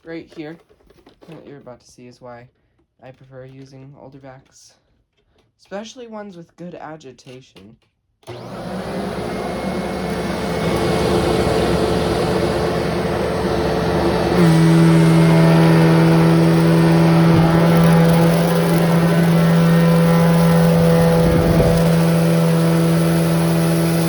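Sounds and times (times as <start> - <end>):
vacuum cleaner motor hum: 8.3 - 24.0.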